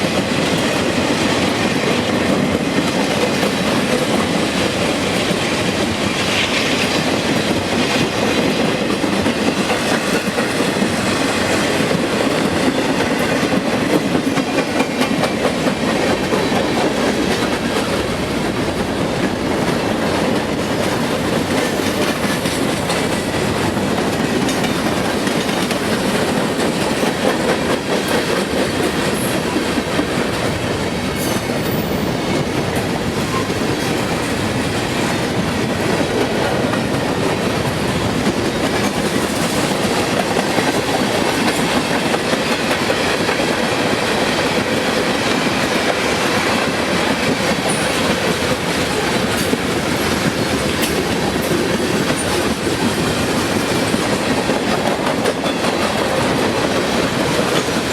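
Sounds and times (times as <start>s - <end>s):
train wheels clattering over rails: 0.0s - 57.9s.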